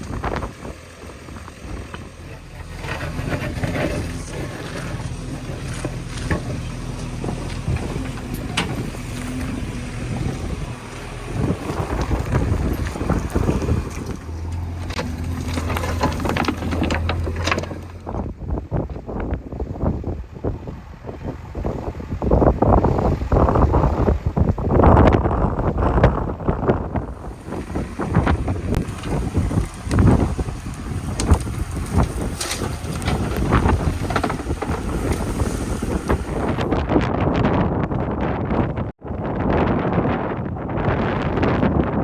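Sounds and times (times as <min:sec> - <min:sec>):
diesel engine under load: 0:00.0 - 0:42.0
wind noise on microphone: 0:00.0 - 0:42.0
machine knocks and clatter: 0:27.4 - 0:36.4.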